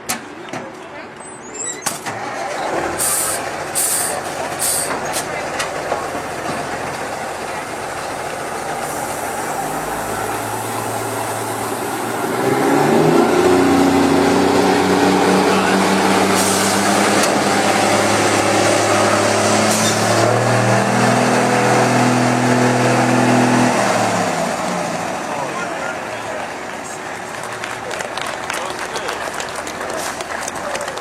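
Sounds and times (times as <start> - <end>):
heavy truck engine running: 1.8 - 31.0
short air hisses: 3.0 - 4.9.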